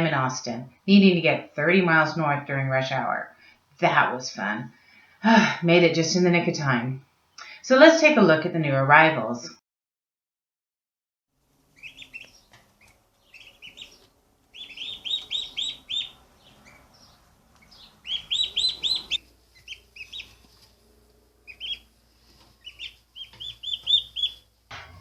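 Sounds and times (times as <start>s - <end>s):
turkey poults peeping: 11.8s - 20.7s, 21.4s - 25.0s.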